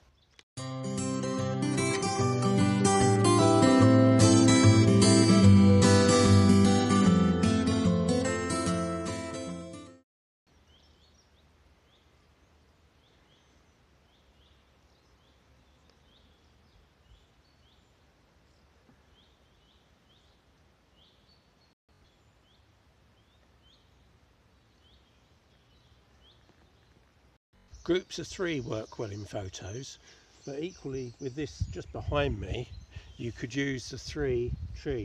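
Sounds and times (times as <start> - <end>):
birds chirping: 10.5 - 35.0.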